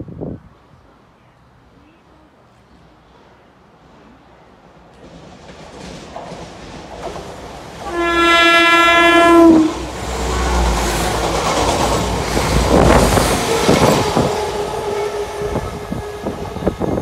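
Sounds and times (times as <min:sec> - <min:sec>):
train rumble and wheel clatter: 0:00.0 - 0:17.0
train horn: 0:07.8 - 0:10.7, 0:13.1 - 0:17.0.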